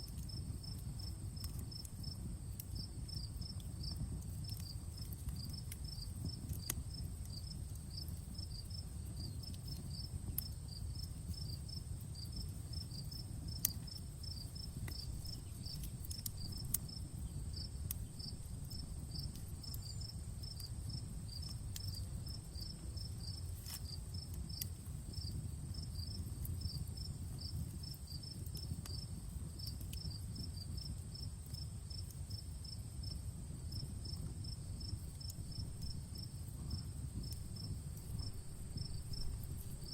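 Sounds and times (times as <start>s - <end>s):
campfire crackling and popping: 0.0s - 39.9s
crickets chirping: 0.1s - 39.9s
high insect trill: 31.9s - 39.9s.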